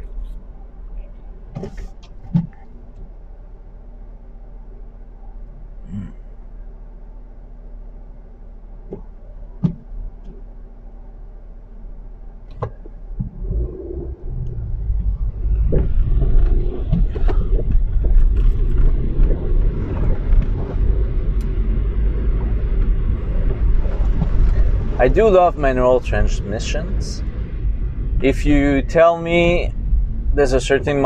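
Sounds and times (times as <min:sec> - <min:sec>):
car engine: 0:00.0 - 0:31.0
tyres rumbling on slushy road: 0:13.3 - 0:31.0.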